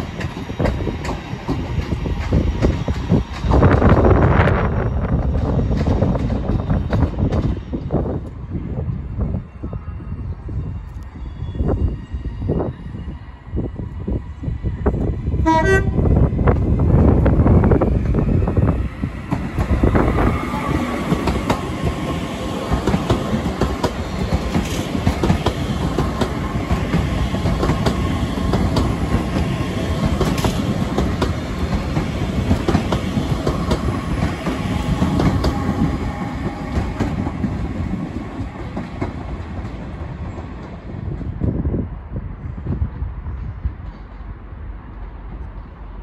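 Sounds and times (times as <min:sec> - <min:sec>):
train rumbling: 0:00.0 - 0:46.0
wheels clacking over rail joints: 0:19.2 - 0:41.4.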